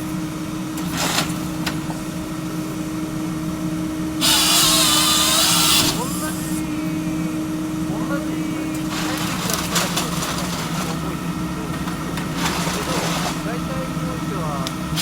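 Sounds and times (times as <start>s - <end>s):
engine and hydraulic hum: 0.0s - 15.0s
saw cutting: 4.2s - 6.8s, 7.9s - 15.0s.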